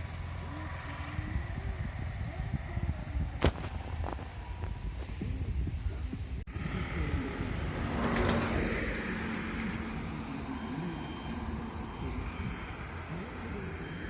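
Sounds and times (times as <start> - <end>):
motor vehicle passing: 6.5 - 14.0.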